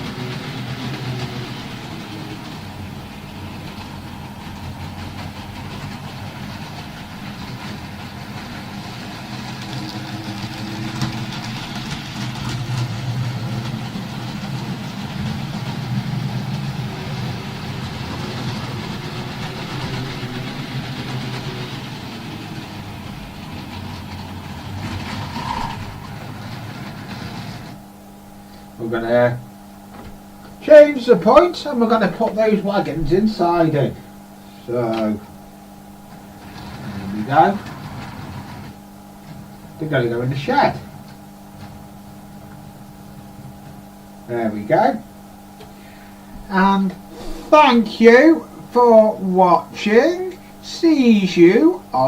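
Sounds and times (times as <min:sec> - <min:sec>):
model train motor hum: 0:00.0 - 0:27.8, 0:36.1 - 0:40.9.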